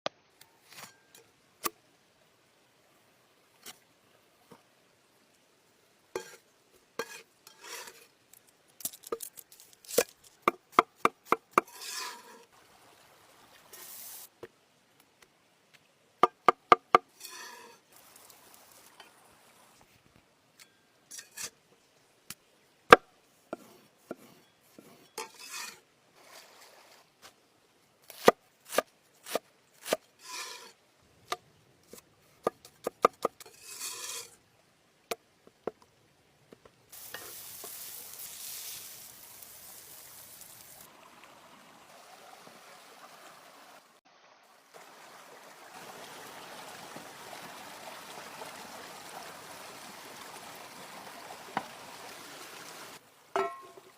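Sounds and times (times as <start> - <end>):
scraping and stirring: 6.2 - 6.4, 7.0 - 8.1, 11.6 - 12.5, 30.2 - 30.8, 33.3 - 34.4
steady hiss: 13.6 - 14.5, 17.2 - 20.2, 36.9 - 40.9.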